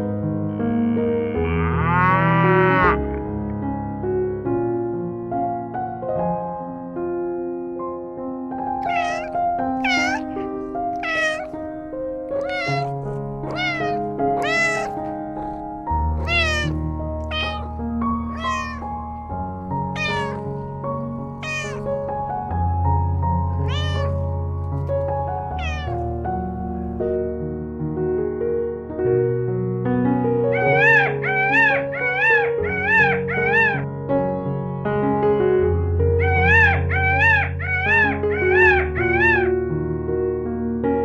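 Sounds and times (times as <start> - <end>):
soft piano music: 0.0 - 41.0
animal calling: 8.8 - 11.6, 12.3 - 18.9, 19.9 - 20.7, 21.4 - 22.0, 23.6 - 24.2, 25.6 - 26.1, 30.5 - 33.9, 36.2 - 39.5.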